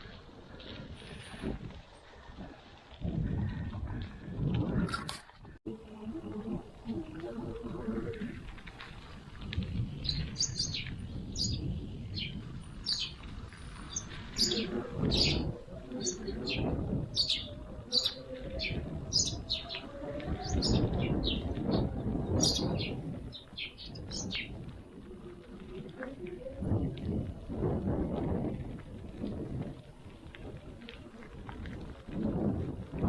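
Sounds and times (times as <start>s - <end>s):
small birds chirping: 9.9s - 24.6s.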